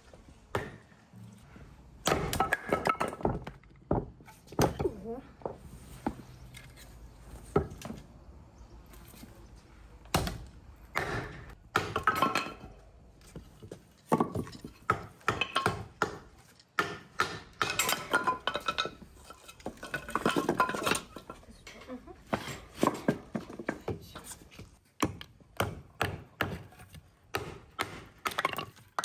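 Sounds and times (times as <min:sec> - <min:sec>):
kitchenware clinking and knocking: 0:11.0 - 0:12.8, 0:16.9 - 0:24.2.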